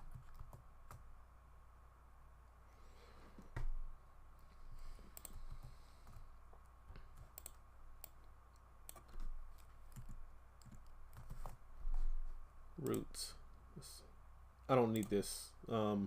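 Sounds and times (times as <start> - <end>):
computer keys clicking: 0.0 - 1.1, 5.1 - 6.2, 7.0 - 11.6, 14.9 - 15.2
faint steady hum: 0.0 - 16.0.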